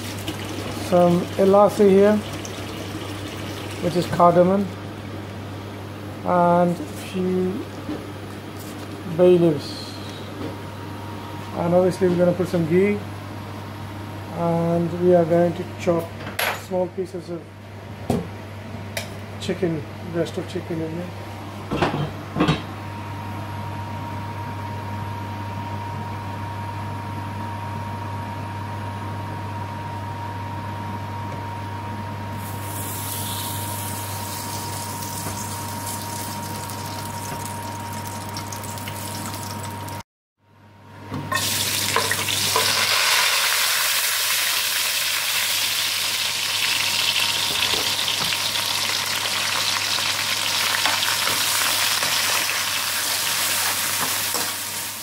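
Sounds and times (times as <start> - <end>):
sizzling in hot fat: 0.0 - 4.7, 32.4 - 40.0, 41.3 - 55.0
low hum with faint tone: 0.0 - 52.3.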